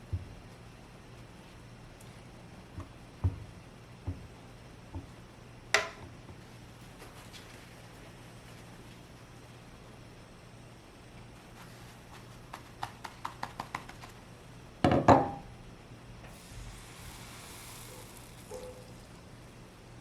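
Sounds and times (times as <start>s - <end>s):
soft hiss: 16.2s - 20.0s.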